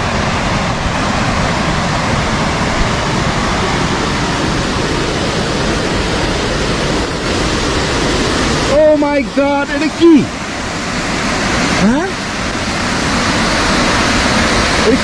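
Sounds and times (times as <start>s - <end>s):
large waterfall rushing: 0.0s - 15.0s.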